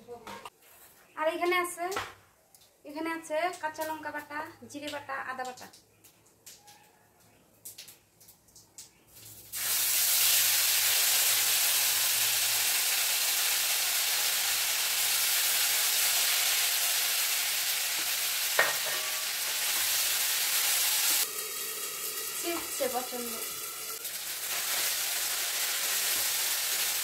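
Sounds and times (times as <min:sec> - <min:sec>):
spice paste sizzling in oil: 0:09.5 - 0:27.0.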